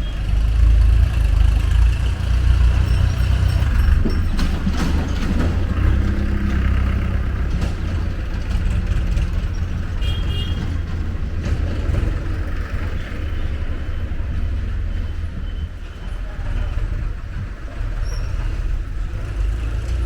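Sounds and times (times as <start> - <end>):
heavy vehicle rumbling: 0.0 - 20.0.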